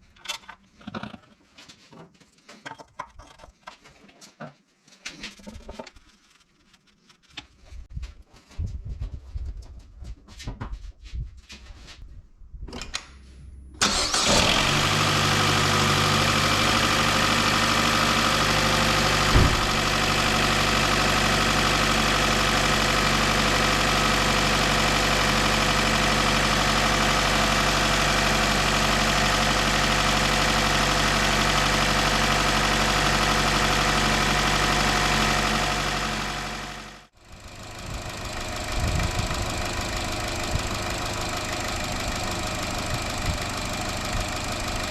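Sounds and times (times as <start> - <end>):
car engine starting and idling: 12.8 - 44.9
sharp knock: 19.3 - 19.8.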